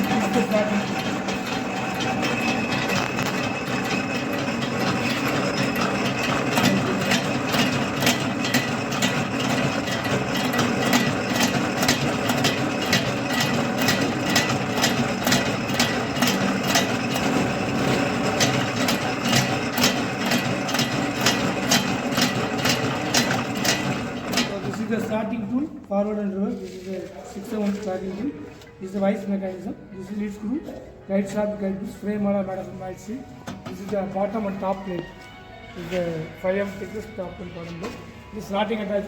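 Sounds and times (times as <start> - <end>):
rhythmic sharp clicks: 0.0 - 25.1
drilling machine motor hum: 0.0 - 25.4.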